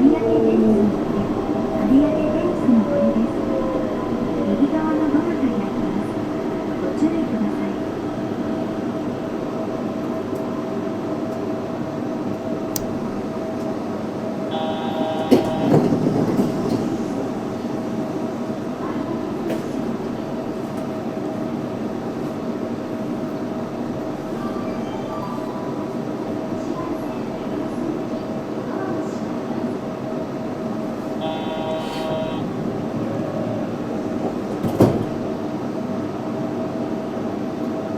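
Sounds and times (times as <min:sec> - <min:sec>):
train equipment humming: 0:00.0 - 0:24.3, 0:30.0 - 0:36.2
door chime: 0:14.5 - 0:15.9
train doors opening thud: 0:14.5 - 0:16.9, 0:31.2 - 0:32.4, 0:34.3 - 0:35.3.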